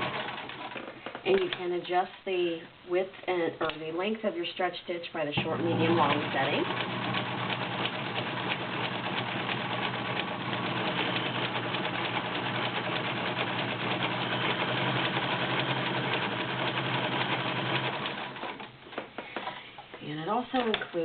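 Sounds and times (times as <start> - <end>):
sewing machine running: 0.0 - 0.8, 5.4 - 18.8.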